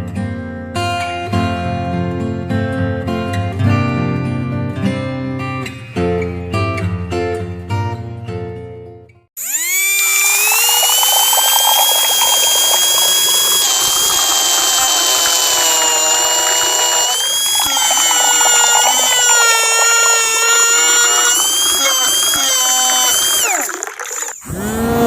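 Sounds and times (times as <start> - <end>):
small motor whining: 9.4 - 25.0.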